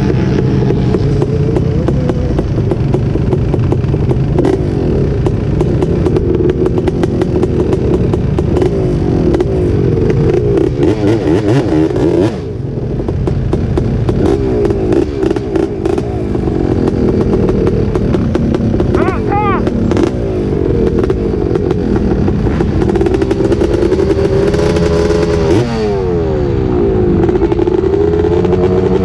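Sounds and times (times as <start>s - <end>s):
atv engine revving: 0.0s - 29.0s
dirt bike revving hard: 0.0s - 29.0s.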